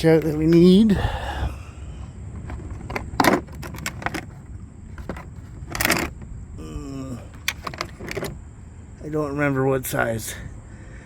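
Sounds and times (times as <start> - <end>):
metal wrenches clanking: 5.0 - 6.2, 7.4 - 8.4.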